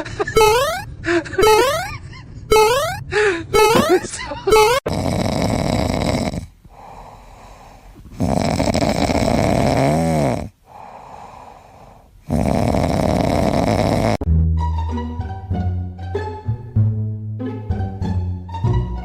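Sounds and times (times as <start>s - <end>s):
loud snoring: 4.8s - 14.3s
quiet breathing: 5.6s - 12.6s.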